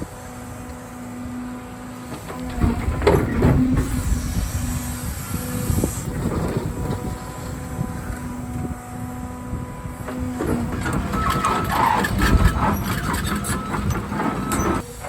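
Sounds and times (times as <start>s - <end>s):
excavator diesel engine under load: 0.0s - 15.0s
hydraulic whine: 0.0s - 15.0s
excavator clunks: 2.0s - 4.8s, 6.0s - 8.2s, 10.0s - 15.0s.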